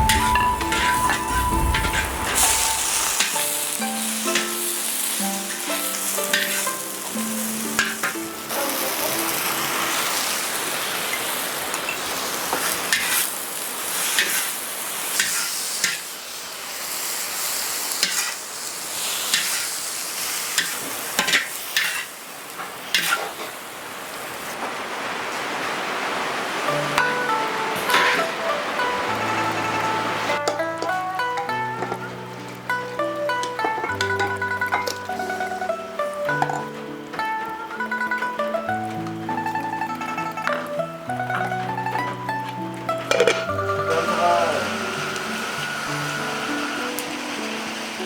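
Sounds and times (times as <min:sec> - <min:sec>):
soft background music: 0:00.0 - 0:11.5, 0:26.7 - 0:48.0
food sizzling in a pan: 0:00.0 - 0:24.6, 0:26.3 - 0:48.0
utensil scraping a pan: 0:05.4 - 0:06.8, 0:15.2 - 0:16.0, 0:22.9 - 0:23.4, 0:27.8 - 0:28.3.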